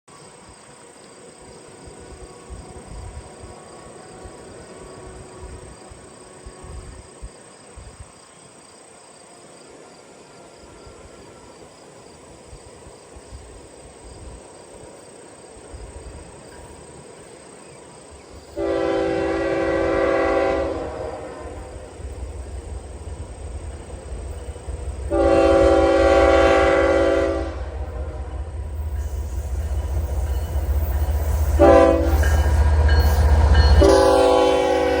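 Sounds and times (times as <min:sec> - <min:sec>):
locomotive air horn: 0:18.6 - 0:21.9, 0:25.1 - 0:28.5, 0:31.5 - 0:35.0.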